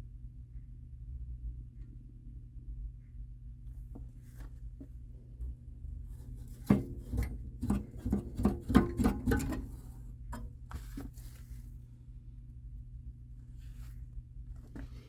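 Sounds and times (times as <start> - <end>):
steady low hum: 0.0 - 15.0
hard objects knocking and rattling: 6.4 - 11.3.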